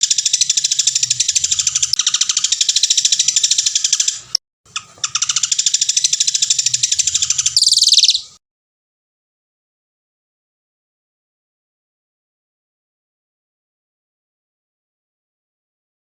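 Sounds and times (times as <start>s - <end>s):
songbird trilling: 0.0s - 8.4s.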